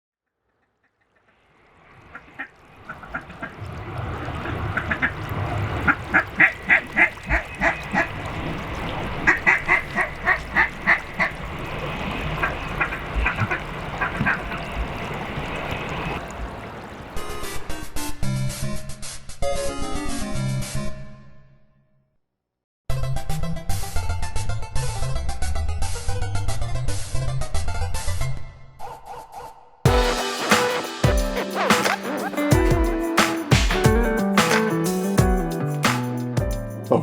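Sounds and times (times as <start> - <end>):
duck quacking: 4.5 - 8.3, 9.2 - 11.4, 12.2 - 14.8.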